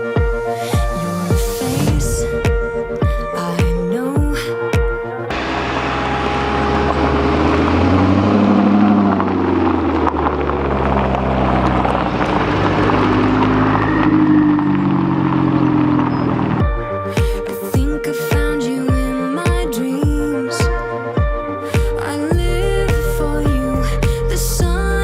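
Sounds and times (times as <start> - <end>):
car engine running: 0.2 - 17.8.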